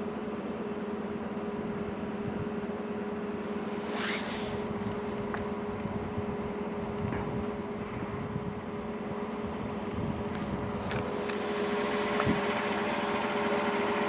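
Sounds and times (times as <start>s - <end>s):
diesel locomotives idling: 7.6s - 14.0s.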